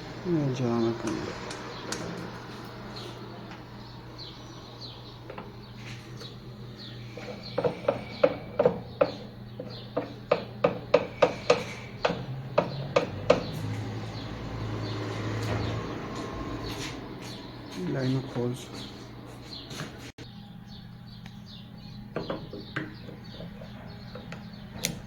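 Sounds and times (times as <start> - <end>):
steady low hum: 0.0 - 25.0
sharp knocks: 7.6 - 14.0.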